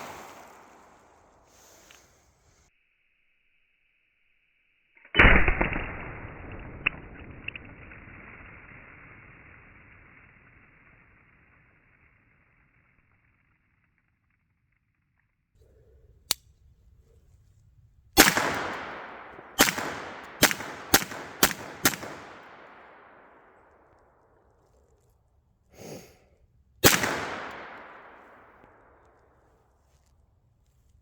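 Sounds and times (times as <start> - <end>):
pistol shots echoing: 0.0 - 1.4, 18.2 - 23.6, 26.8 - 29.0.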